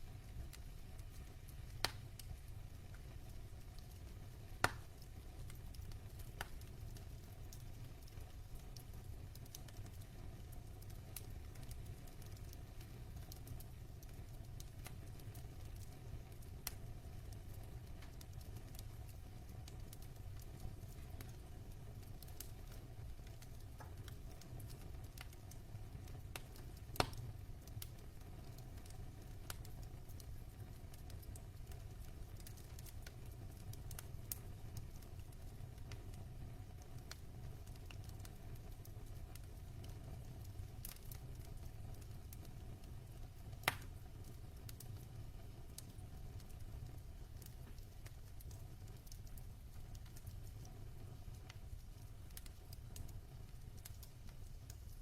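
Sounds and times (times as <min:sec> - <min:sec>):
logs burning and crackling: 0:00.0 - 0:55.0
loud fire pops: 0:26.4 - 0:27.3.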